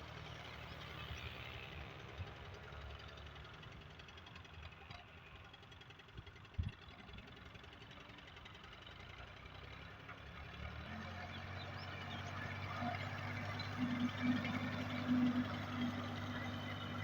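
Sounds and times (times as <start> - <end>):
tractor diesel engine running: 11.4 - 17.0.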